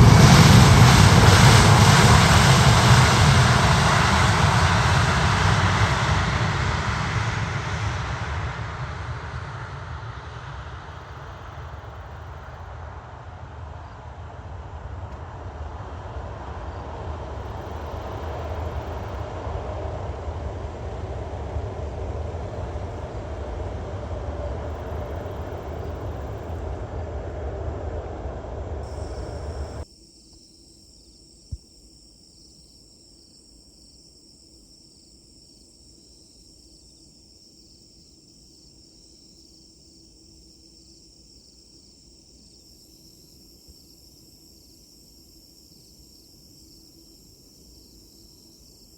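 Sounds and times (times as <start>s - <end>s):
loud low rushing noise: 0.0s - 10.9s, 19.2s - 29.8s
crickets chirring: 10.9s - 12.7s, 16.4s - 19.3s, 20.6s - 27.6s, 28.8s - 48.9s.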